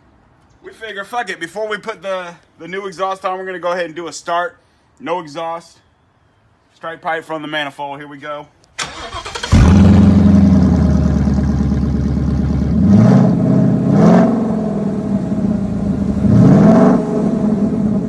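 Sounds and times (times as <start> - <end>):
car engine revving: 8.9 - 18.0.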